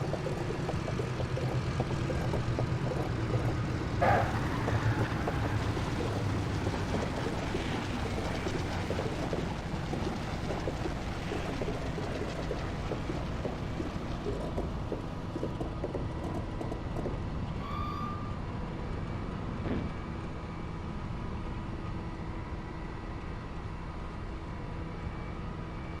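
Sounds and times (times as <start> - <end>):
airliner engines rumbling in cabin: 0.0 - 25.0
brief high tone: 17.6 - 18.4.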